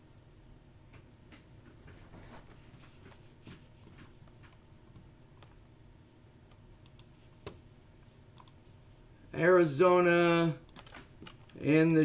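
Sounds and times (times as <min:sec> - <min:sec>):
computer keyboard typing: 0:08.4 - 0:08.6, 0:10.7 - 0:12.0.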